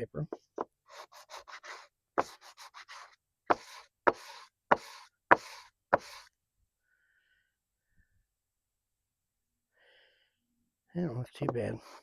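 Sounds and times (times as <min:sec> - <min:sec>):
sandpaper rubbing strokes: 0:00.9 - 0:06.3.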